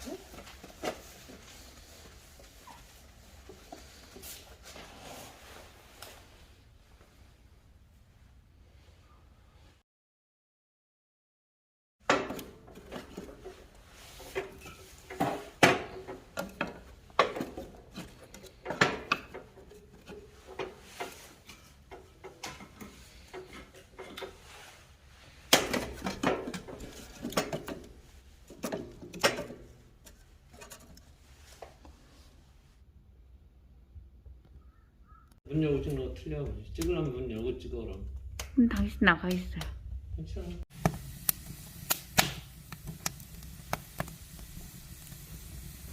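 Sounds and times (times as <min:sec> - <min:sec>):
wood and metal knocks and clunks: 0:12.0 - 0:24.4, 0:25.5 - 0:30.9.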